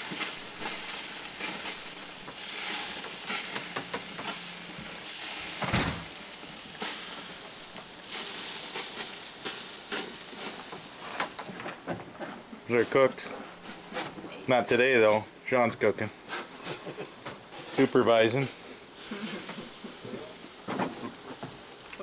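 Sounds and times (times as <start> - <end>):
food sizzling in frying pan: 0.0 - 11.4, 16.2 - 22.0
dull thump: 5.6 - 6.2.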